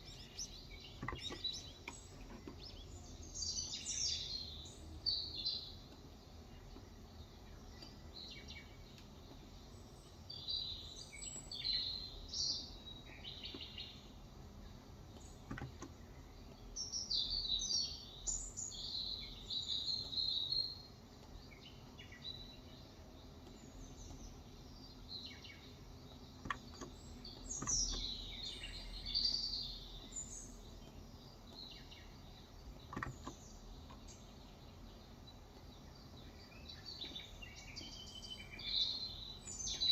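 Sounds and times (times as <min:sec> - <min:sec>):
low background hum: 0:00.0 - 0:39.9
small birds chirping: 0:00.0 - 0:39.9
soft clicks: 0:26.2 - 0:28.2.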